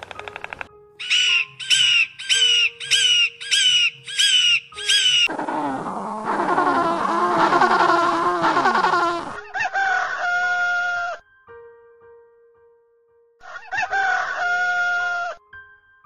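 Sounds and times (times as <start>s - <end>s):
many overlapping bird calls: 0.0s - 5.5s
harsh bird calls: 0.0s - 11.2s.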